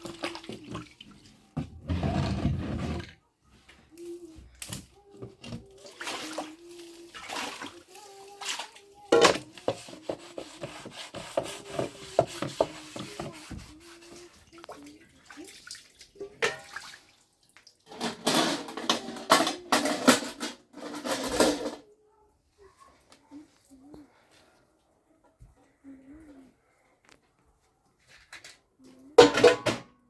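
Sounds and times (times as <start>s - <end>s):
water splashing: 5.7s - 8.9s, 14.2s - 17.9s
dishes clinking: 29.2s - 30.0s.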